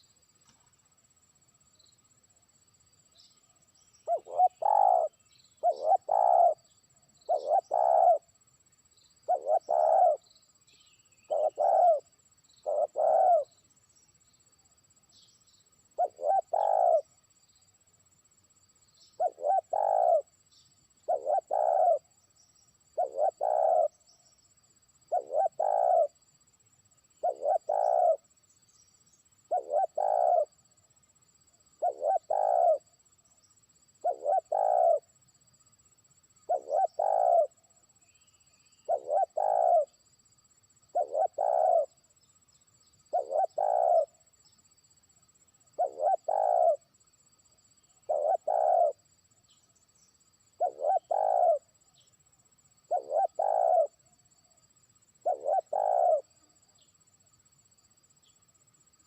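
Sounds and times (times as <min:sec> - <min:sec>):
dove cooing: 0:04.0 - 0:06.7, 0:07.3 - 0:08.3, 0:09.3 - 0:10.2, 0:11.3 - 0:13.6, 0:16.0 - 0:17.1, 0:19.2 - 0:20.3, 0:21.1 - 0:22.0, 0:23.0 - 0:24.0, 0:25.1 - 0:26.2, 0:27.2 - 0:28.2, 0:29.5 - 0:30.5, 0:31.8 - 0:32.8, 0:34.0 - 0:35.0, 0:36.5 - 0:37.6, 0:38.9 - 0:39.9, 0:40.9 - 0:41.9, 0:43.1 - 0:44.1, 0:45.8 - 0:46.8, 0:48.0 - 0:49.0, 0:50.6 - 0:51.6, 0:52.9 - 0:54.0, 0:55.2 - 0:56.3.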